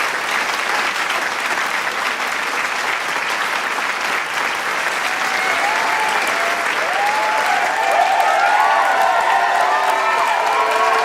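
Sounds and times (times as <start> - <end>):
crowd clapping: 0.0 - 11.0
voices cheering: 5.0 - 11.0.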